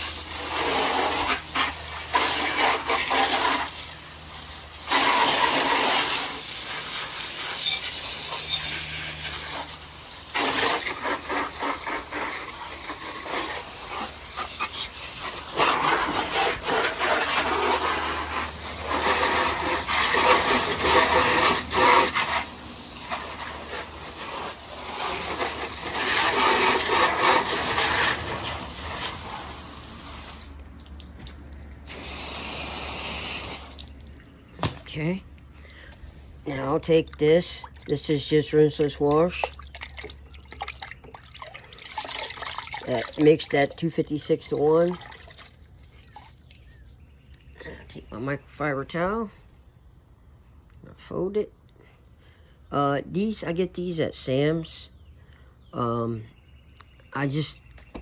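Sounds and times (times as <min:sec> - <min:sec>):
hose water spraying: 0:00.0 - 0:34.8.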